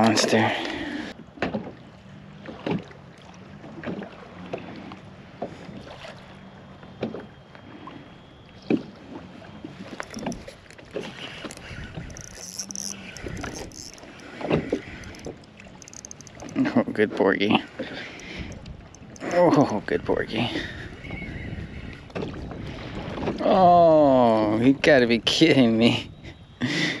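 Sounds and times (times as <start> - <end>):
water splashing: 8.8 - 16.8.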